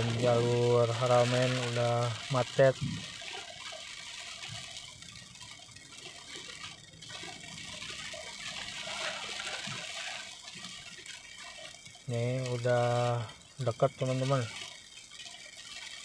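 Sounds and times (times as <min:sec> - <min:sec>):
heavy rain: 0:00.0 - 0:04.4, 0:07.1 - 0:10.6
tyres on wet road: 0:00.0 - 0:04.6, 0:07.2 - 0:10.7.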